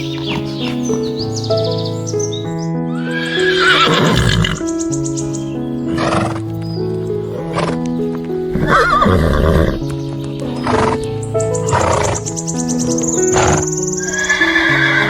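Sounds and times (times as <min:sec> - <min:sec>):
background music of held notes: 0:00.0 - 0:15.0
horse whinnying: 0:02.9 - 0:04.7, 0:05.9 - 0:06.4, 0:07.5 - 0:07.8, 0:08.5 - 0:09.8, 0:10.6 - 0:11.0, 0:11.7 - 0:12.3, 0:13.2 - 0:15.0.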